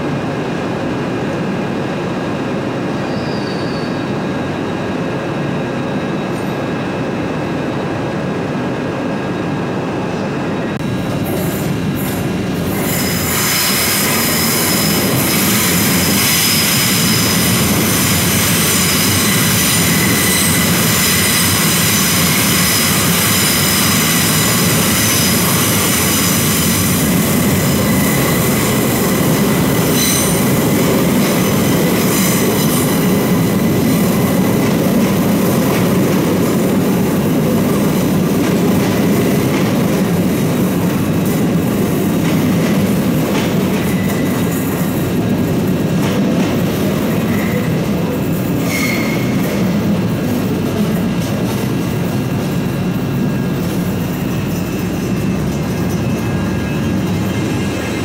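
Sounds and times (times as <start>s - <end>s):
train rumbling: 0.0s - 58.0s
train wheels squealing: 3.0s - 5.0s, 11.2s - 35.6s, 42.2s - 45.0s, 46.6s - 49.8s, 53.0s - 58.0s.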